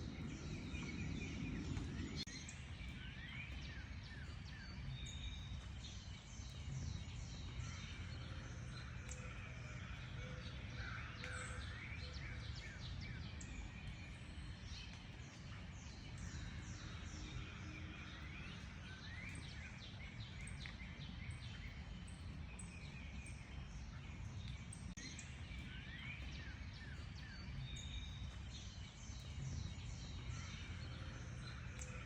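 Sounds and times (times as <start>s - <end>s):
low background rumble: 0.0s - 18.8s
small birds chirping: 0.0s - 32.0s.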